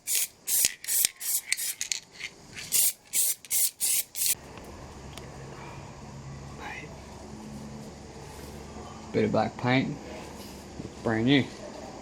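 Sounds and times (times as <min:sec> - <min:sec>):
spray can hissing bursts: 0:00.0 - 0:01.9, 0:02.7 - 0:04.4.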